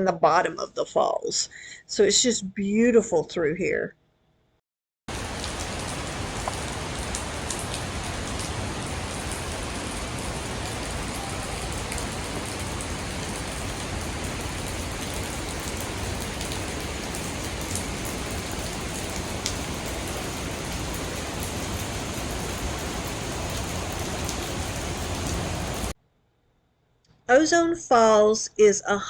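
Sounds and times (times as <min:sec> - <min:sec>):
waterfall roaring: 0:05.1 - 0:25.9.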